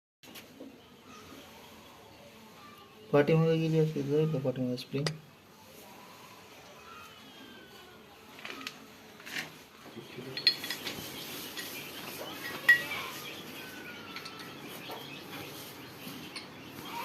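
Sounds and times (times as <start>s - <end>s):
birds chirping faintly: 0.2s - 17.0s
metallic tool clinks: 10.3s - 11.0s.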